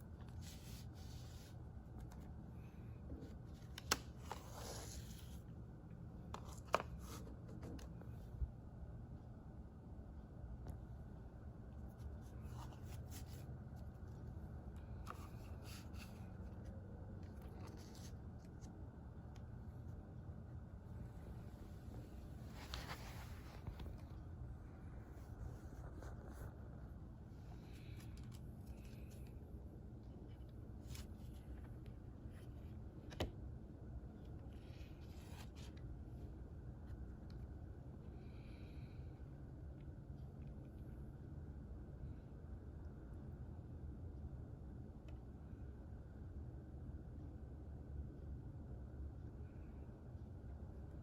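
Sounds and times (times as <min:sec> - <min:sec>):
faint low hum: 0:00.0 - 0:51.0
paper and card rustling: 0:00.1 - 0:02.4, 0:03.1 - 0:05.4, 0:06.3 - 0:08.2, 0:11.9 - 0:18.7, 0:22.5 - 0:24.2, 0:27.6 - 0:29.5, 0:30.3 - 0:33.3.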